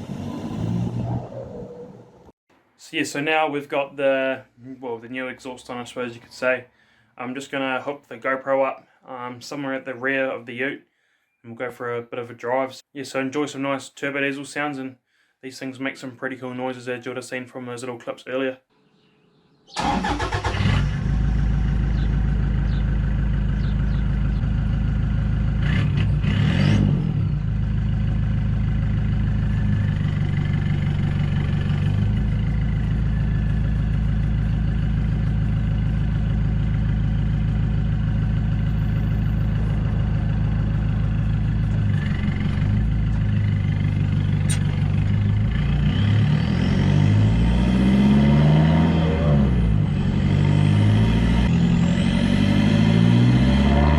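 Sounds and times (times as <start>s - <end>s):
diesel engine exhaust drone: 0.0s - 2.3s, 20.2s - 53.9s.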